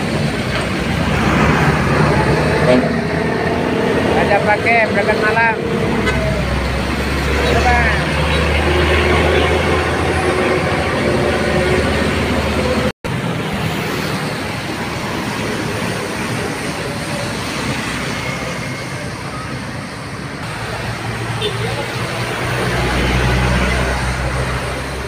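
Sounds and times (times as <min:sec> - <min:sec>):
bus diesel engine humming: 0:00.0 - 0:25.0
road and traffic noise: 0:00.0 - 0:25.0.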